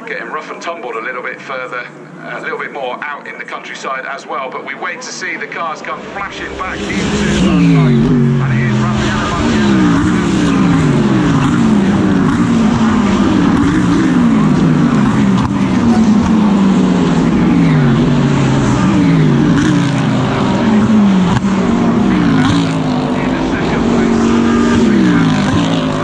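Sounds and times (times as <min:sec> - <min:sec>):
race car engine revving through gears: 0:05.5 - 0:26.0.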